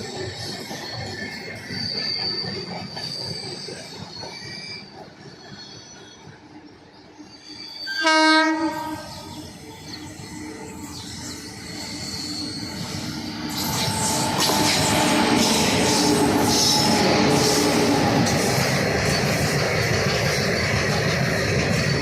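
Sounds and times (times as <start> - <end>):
train wagons rumbling and clattering: 0.0 - 22.0
locomotive horn blast: 8.0 - 9.2
wheels squealing: 9.1 - 22.0.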